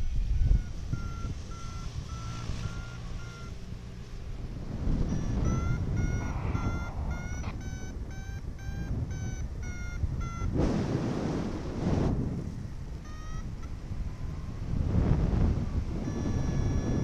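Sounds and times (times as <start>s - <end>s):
variometer beeping: 0.0s - 17.0s
wind on microphone: 4.4s - 12.9s, 13.5s - 17.0s.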